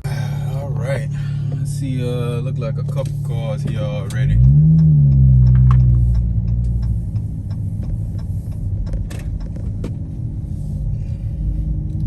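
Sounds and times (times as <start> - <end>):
car engine and road rumble: 0.0 - 12.0
faint regular clicks: 2.9 - 10.1.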